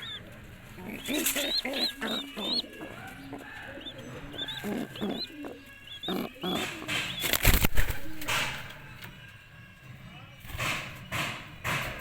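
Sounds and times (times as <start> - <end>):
pigeons cooing: 0.0 - 9.1
pigeons peeping: 0.0 - 9.6.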